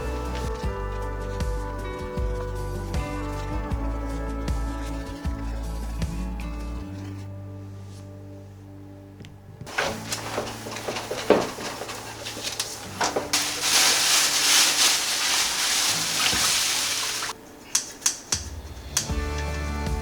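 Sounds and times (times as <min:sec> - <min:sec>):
background music: 0:00.0 - 0:20.0
dishes knocking: 0:09.7 - 0:13.4
water running from tap into sink: 0:10.8 - 0:17.4.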